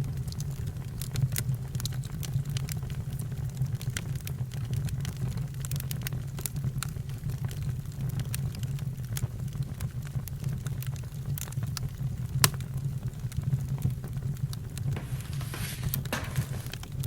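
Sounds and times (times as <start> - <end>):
campfire crackling: 0.2 - 17.0
sharp fire pops: 12.3 - 12.8.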